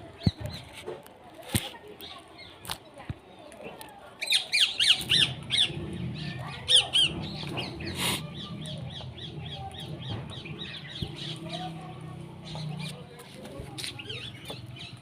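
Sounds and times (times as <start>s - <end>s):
birds calling and chirping: 3.7s - 15.0s.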